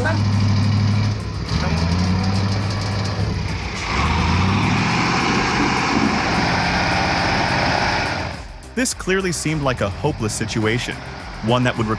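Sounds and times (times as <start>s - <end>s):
heavy truck engine under load: 0.0s - 8.5s.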